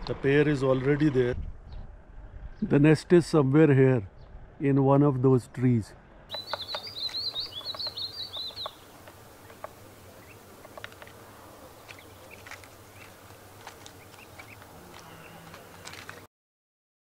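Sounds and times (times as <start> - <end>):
bird calling high sharp notes: 6.3 - 13.2
faint chirps and ticks: 6.3 - 16.2.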